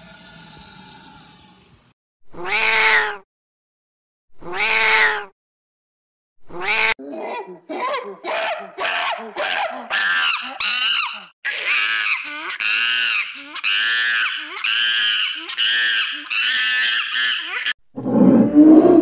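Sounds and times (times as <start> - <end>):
monkey squealing: 2.4 - 3.2, 4.5 - 5.3, 6.5 - 17.8.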